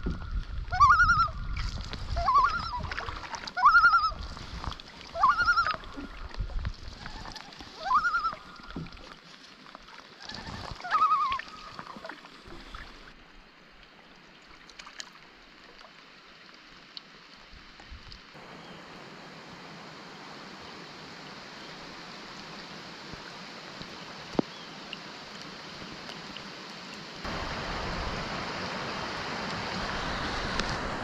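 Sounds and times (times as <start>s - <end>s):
loon calling: 0.7s - 1.4s, 2.2s - 2.9s, 3.6s - 4.2s, 5.1s - 6.2s, 7.0s - 8.8s, 10.2s - 11.8s.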